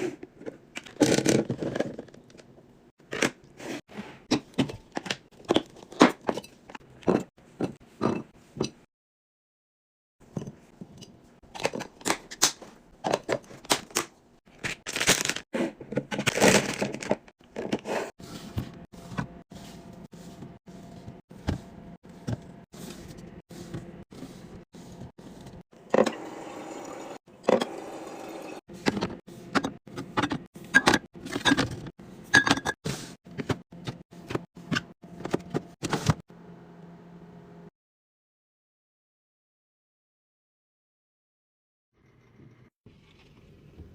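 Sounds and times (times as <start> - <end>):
fridge hum: 11.5 - 37.4
packaging crinkling: 14.6 - 15.4
food containers knocking and clinking: 28.8 - 36.2.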